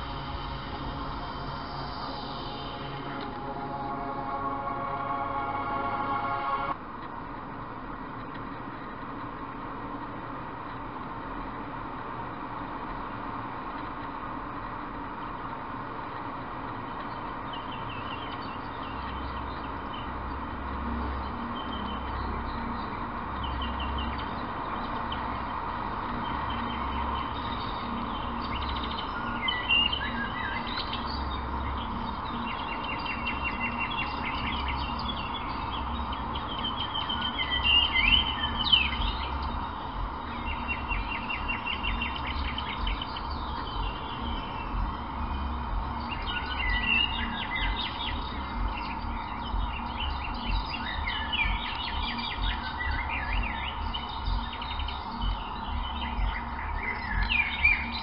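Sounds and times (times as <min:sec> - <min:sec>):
small birds chirping: 0:00.0 - 0:05.0, 0:10.7 - 0:58.0
low steady rumble: 0:00.0 - 0:58.0.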